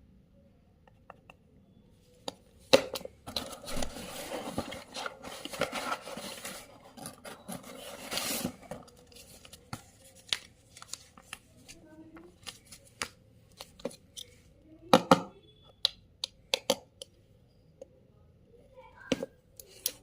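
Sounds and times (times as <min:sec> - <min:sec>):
packaging scraping and rustling: 0:03.3 - 0:11.2.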